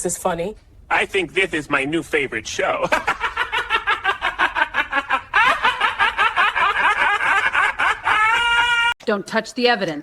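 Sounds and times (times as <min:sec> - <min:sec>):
hearty laughter: 0:02.8 - 0:08.9.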